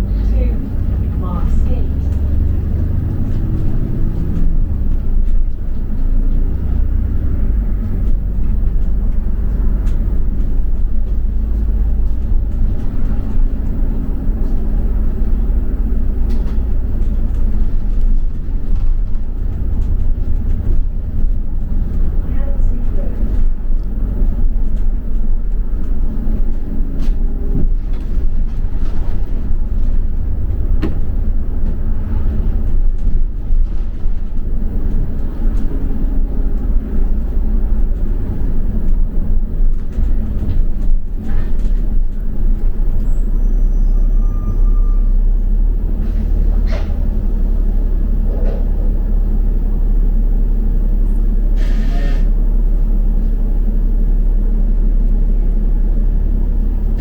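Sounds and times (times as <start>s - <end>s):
bus engine and road rumble: 0.0s - 57.0s
rattles and knocks: 2.0s - 43.1s
short hiss: 51.6s - 52.3s.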